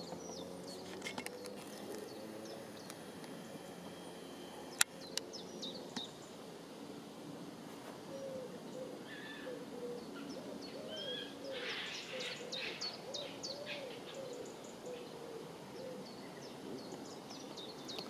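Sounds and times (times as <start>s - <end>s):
small songbirds chirping: 0.0s - 7.1s, 8.0s - 18.0s
pigeon cooing: 8.1s - 16.4s.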